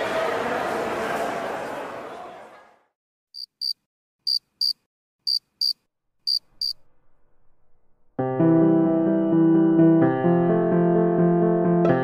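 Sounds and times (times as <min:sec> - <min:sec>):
cricket double chirps: 0:03.4 - 0:06.8
piano and guitar music: 0:08.2 - 0:12.0.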